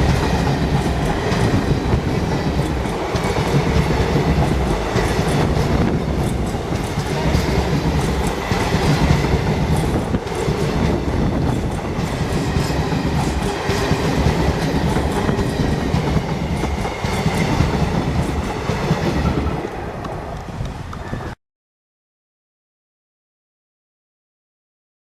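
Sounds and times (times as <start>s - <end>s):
train wheels clattering over rail joints: 0.0s - 19.8s.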